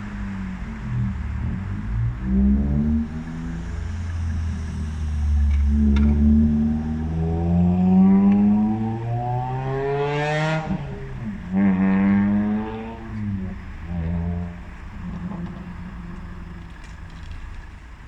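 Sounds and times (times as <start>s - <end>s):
truck diesel engine pulling away: 0.0s - 18.0s.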